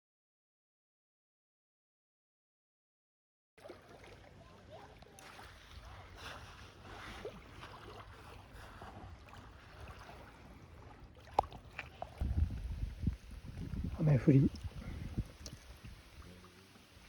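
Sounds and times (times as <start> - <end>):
water splashing and lapping: 3.6 - 17.0.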